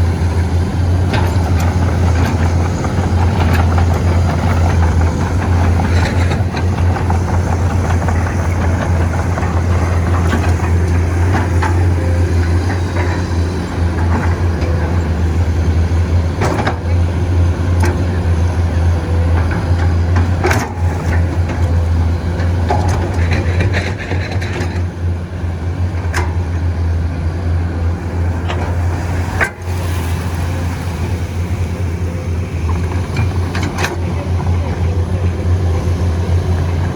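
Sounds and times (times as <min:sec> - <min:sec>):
excavator diesel engine droning: 0:00.0 - 0:36.9.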